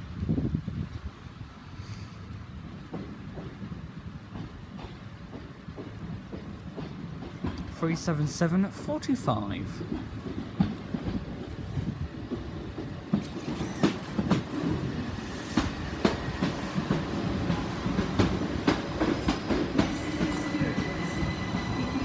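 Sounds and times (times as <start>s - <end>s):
low train rumble: 0.0s - 22.0s
train wheels clattering over joints: 2.6s - 7.8s, 9.8s - 22.0s.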